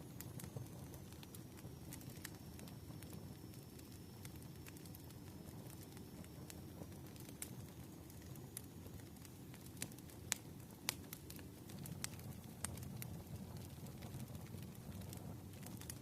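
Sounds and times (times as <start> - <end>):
fire crackling and popping: 0.0 - 16.0.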